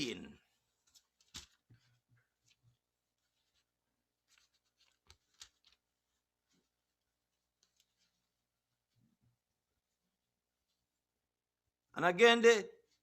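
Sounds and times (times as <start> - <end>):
paper pages rustling: 0.6 - 9.1.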